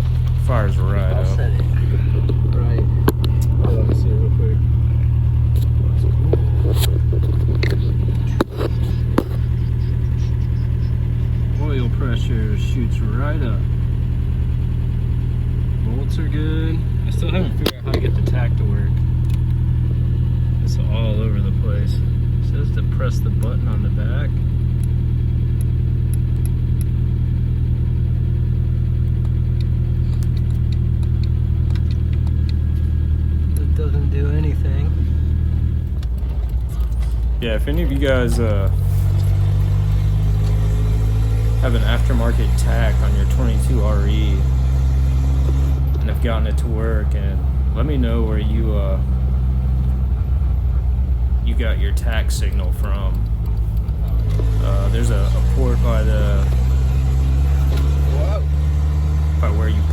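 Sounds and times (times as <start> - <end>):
engine idling: 0.0 - 59.9
sharp clicks: 1.6 - 4.0, 23.3 - 27.0, 29.0 - 33.8, 52.0 - 54.6.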